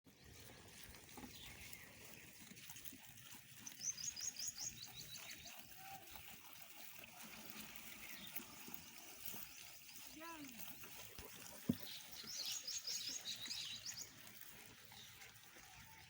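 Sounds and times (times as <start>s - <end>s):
goat chewing leaves: 0.1s - 16.0s
bird chirping: 3.6s - 6.9s, 7.5s - 14.2s.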